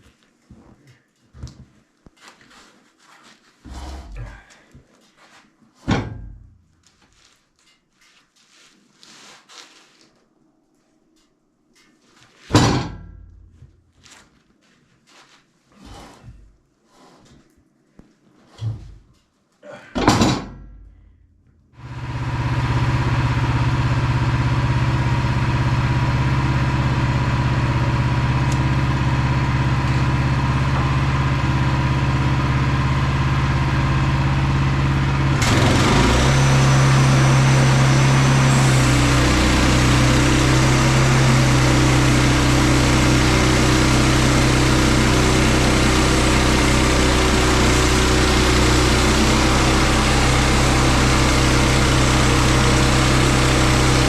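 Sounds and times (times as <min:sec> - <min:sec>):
small gas engine running: 0:21.8 - 0:54.0.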